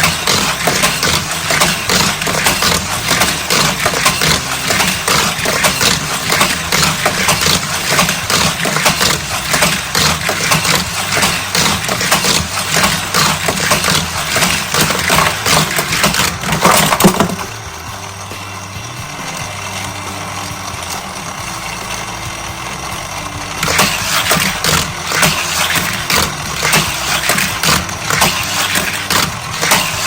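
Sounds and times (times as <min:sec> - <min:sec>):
toy cars clattering on plastic track: 0:00.0 - 0:17.6, 0:22.8 - 0:30.0
steady motor hum: 0:00.0 - 0:30.0.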